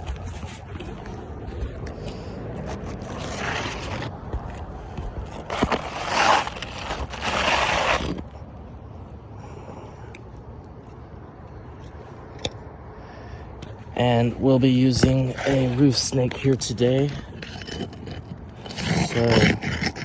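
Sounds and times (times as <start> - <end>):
scraping and rustling on shingle roof: 0.0 - 8.3, 13.3 - 20.0
steady low rumble: 0.0 - 18.8.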